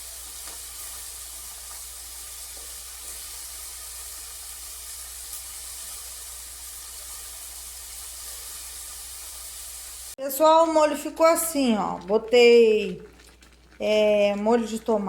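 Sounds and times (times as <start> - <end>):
pot of sauce hissing: 0.0 - 10.2.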